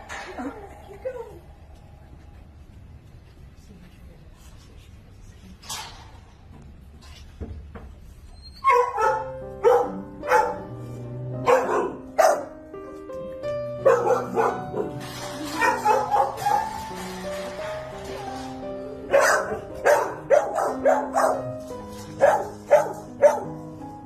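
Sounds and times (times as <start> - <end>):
dogs barking: 8.6 - 10.8, 11.4 - 12.6, 13.8 - 17.0, 19.1 - 23.8
background music: 8.7 - 24.0.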